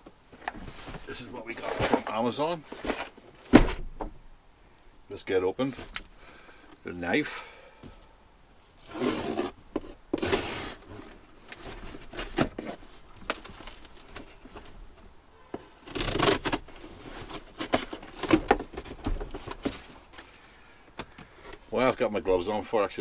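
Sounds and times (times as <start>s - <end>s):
knife cutting parcel open: 10.2s - 10.8s.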